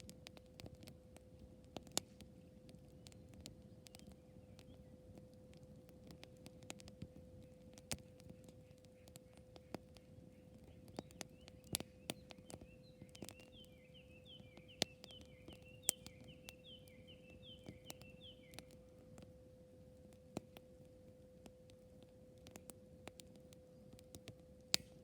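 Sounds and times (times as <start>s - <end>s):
faint steady hum: 0.0s - 25.0s
wood fire crackling and popping: 0.0s - 25.0s
bird singing falling notes: 8.3s - 18.9s.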